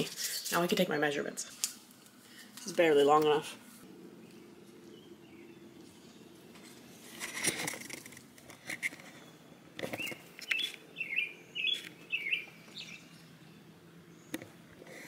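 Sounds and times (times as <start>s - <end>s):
rustle: 0.0s - 13.4s
small bird chirping: 4.2s - 7.3s, 9.1s - 14.5s.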